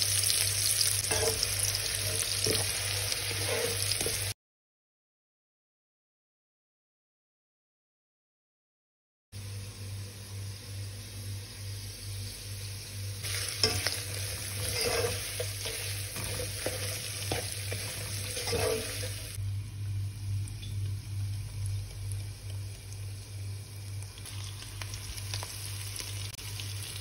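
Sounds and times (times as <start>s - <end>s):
chicken sizzling in oil: 0.0s - 4.4s, 9.8s - 27.0s
spatula scraping and tapping pan: 1.0s - 2.8s, 3.4s - 4.2s, 13.3s - 19.4s
steady low hum: 9.4s - 24.3s.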